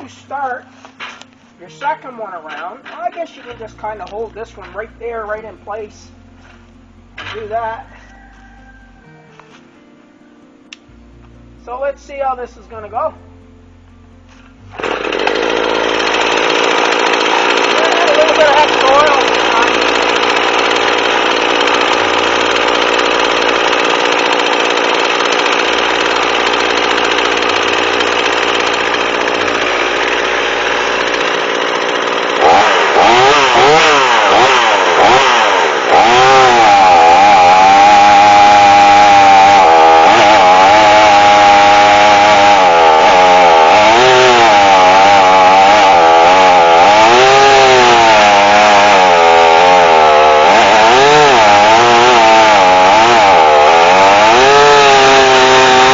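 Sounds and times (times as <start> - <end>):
chainsaw cutting log: 0.0 - 9.9, 14.2 - 55.9.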